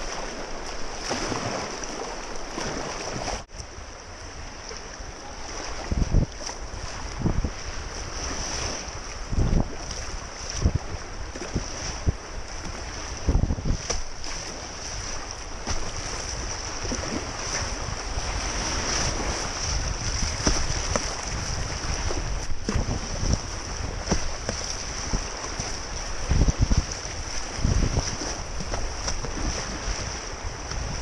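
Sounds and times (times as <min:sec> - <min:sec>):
small splashes and knocks: 0:00.0 - 0:03.6, 0:15.6 - 0:16.2, 0:19.0 - 0:30.0
rushing river water: 0:00.0 - 0:31.0
wind buffeting microphone: 0:02.5 - 0:31.0.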